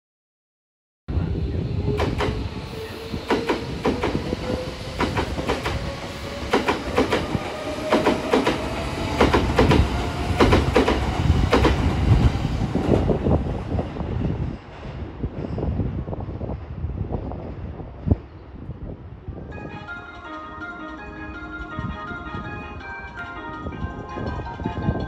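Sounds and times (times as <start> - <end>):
train wheels clacking over rail joints: 5.0 - 12.0.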